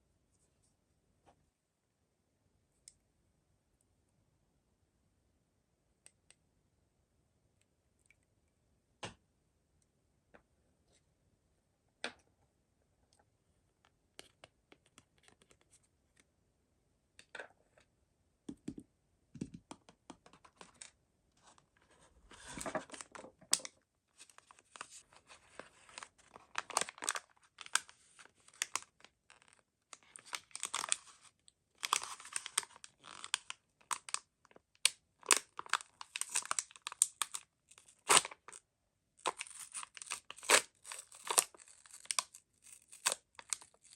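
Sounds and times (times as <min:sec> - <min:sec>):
clicks and taps: 0:18.5 - 0:20.8
packaging tearing and crinkling: 0:24.2 - 0:34.2, 0:35.2 - 0:38.6, 0:39.2 - 0:43.9.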